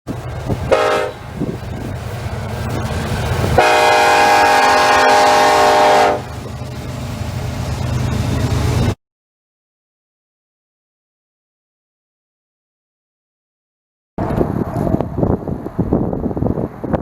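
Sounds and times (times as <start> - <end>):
train rumbling: 0.1 - 9.0, 14.2 - 17.0
locomotive air horn blast: 0.7 - 1.5, 3.5 - 6.4.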